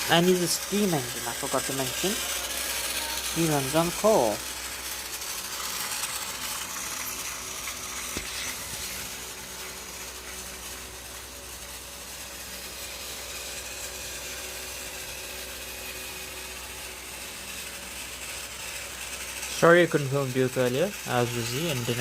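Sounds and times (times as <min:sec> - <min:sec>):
toy train motor whirring: 0:00.0 - 0:22.0.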